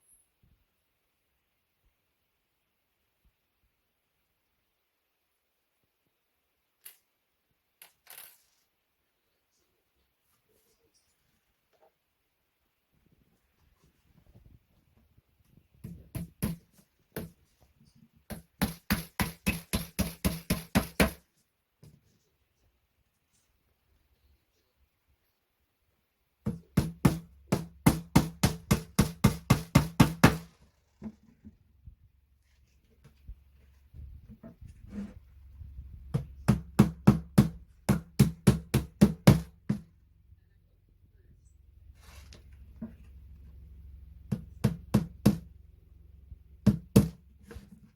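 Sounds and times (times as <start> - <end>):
hammer knocking on furniture: 26.5 - 30.5, 36.1 - 39.9, 44.3 - 45.5, 46.6 - 47.2.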